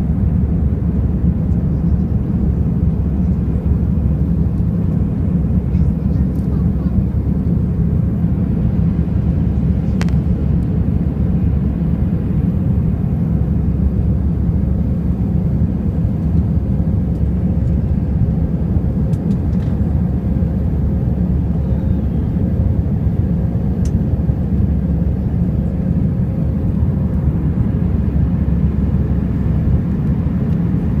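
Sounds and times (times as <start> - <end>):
jet engines roaring: 0.0 - 31.0.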